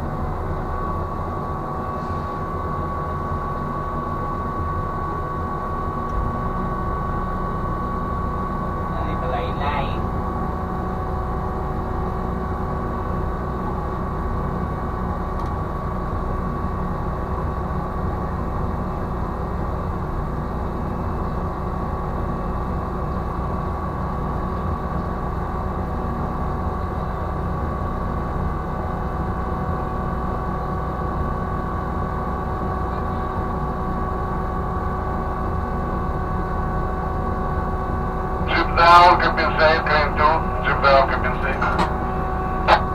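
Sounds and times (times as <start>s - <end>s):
high machine whine: 0.0s - 15.2s, 36.0s - 42.9s
crane machinery rumble: 0.0s - 42.9s.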